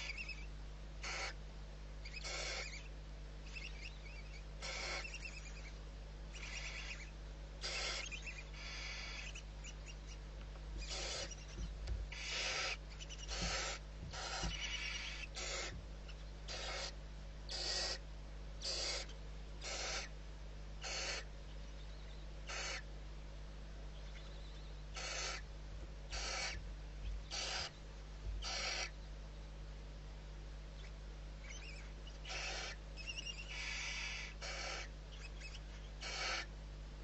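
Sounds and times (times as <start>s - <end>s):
owl hissing calls: 0.0s - 1.4s, 2.0s - 10.2s, 10.8s - 18.0s, 18.6s - 20.2s, 20.8s - 21.3s, 22.4s - 22.9s, 24.0s - 25.5s, 26.1s - 26.6s, 27.3s - 27.8s, 28.4s - 29.0s, 30.8s - 36.5s.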